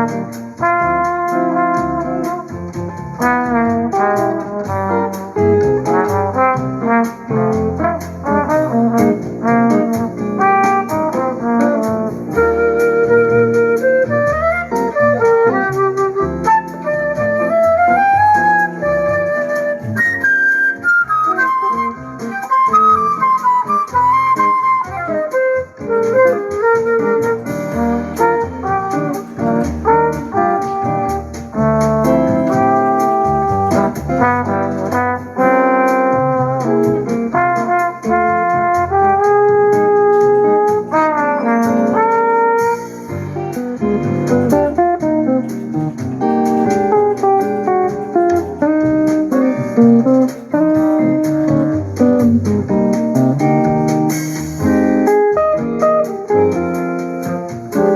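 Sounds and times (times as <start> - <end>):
continuous bass line: 0.0 - 25.1, 25.7 - 57.9
held melody notes: 0.0 - 57.9
instrumental music on speaker: 0.0 - 57.9.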